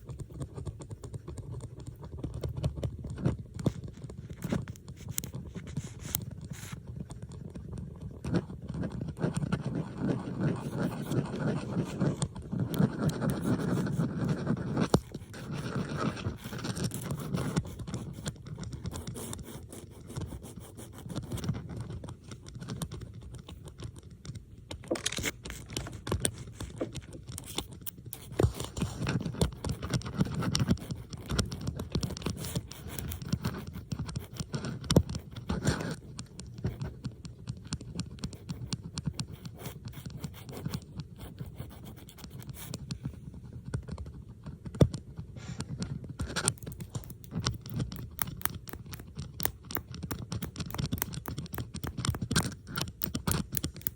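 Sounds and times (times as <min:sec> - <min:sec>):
metal bobby pins scratching and clicking: 0:46.1 - 0:53.9.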